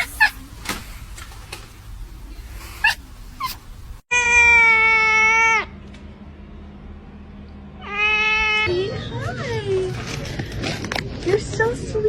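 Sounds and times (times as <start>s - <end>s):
cat meowing: 0.0s - 0.4s, 2.6s - 5.7s, 7.8s - 8.7s.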